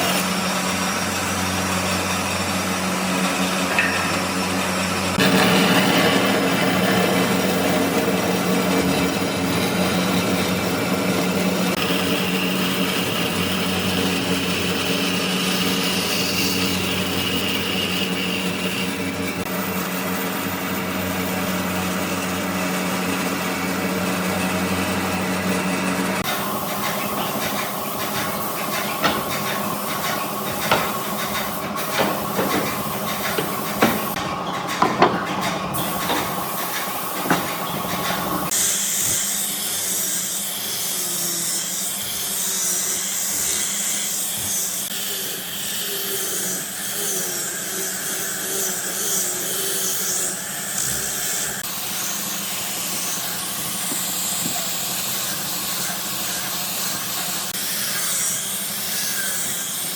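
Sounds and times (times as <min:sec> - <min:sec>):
power tool machine hum: 0:00.0 - 0:59.9
tool hissing on wood: 0:11.6 - 0:19.5, 0:26.2 - 0:59.9
irregular knocks: 0:26.2 - 0:38.5.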